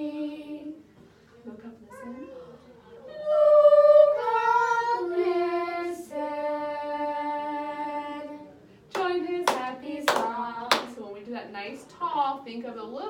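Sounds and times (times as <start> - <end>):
short sharp sung notes or claps: 8.9 - 11.0.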